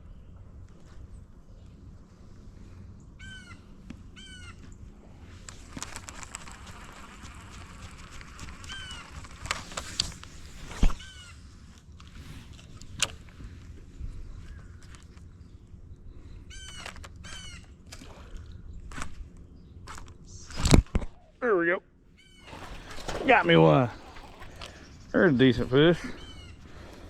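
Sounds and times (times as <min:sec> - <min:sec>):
hiss and small clicks: 0:05.4 - 0:10.8.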